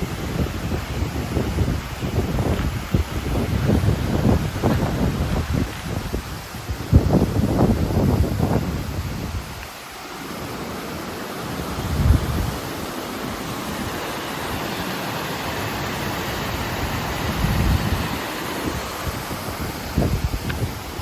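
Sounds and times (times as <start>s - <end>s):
river rushing: 0.0s - 21.0s
wind buffeting microphone: 0.0s - 21.0s.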